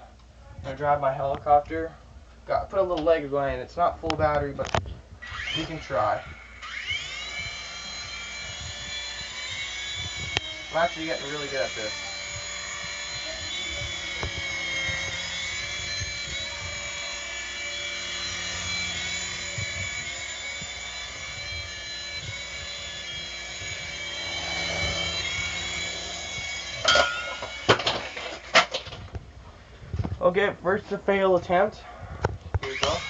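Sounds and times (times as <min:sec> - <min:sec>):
toy helicopter motors whining: 0:04.1 - 0:29.2, 0:32.5 - 0:33.0.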